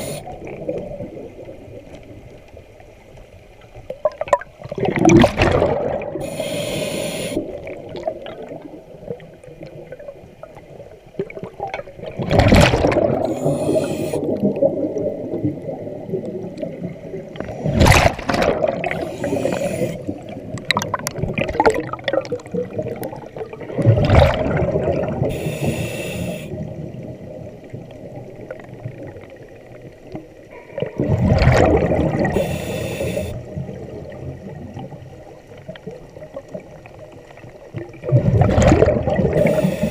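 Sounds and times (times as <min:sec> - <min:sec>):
regulator hiss: 0:00.0 - 0:00.4, 0:06.2 - 0:07.6, 0:13.3 - 0:14.3, 0:19.0 - 0:20.1, 0:25.3 - 0:26.6, 0:32.3 - 0:33.4, 0:39.4 - 0:39.9
exhaled bubbles underwater: 0:00.0 - 0:02.8, 0:03.9 - 0:39.9.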